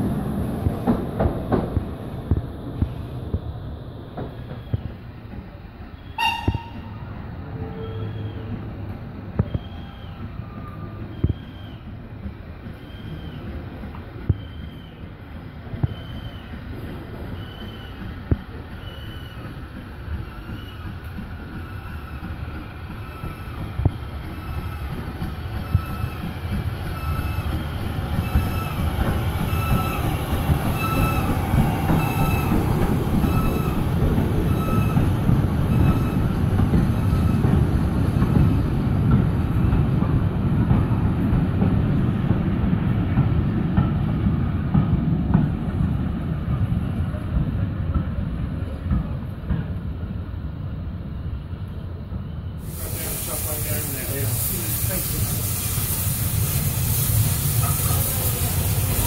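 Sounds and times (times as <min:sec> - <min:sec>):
train rumble: 0:00.0 - 0:59.0
high wheel squeals: 0:07.6 - 0:08.6, 0:21.6 - 0:35.1, 0:35.7 - 0:36.4.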